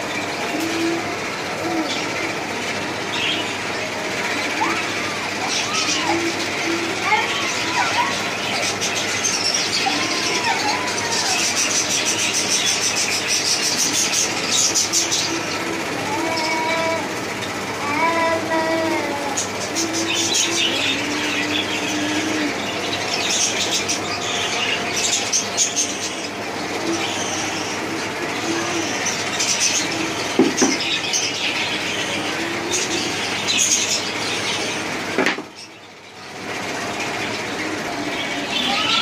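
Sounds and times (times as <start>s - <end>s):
busy bird chatter: 0.0s - 39.0s
cockatiels chirping and squawking: 0.0s - 39.0s.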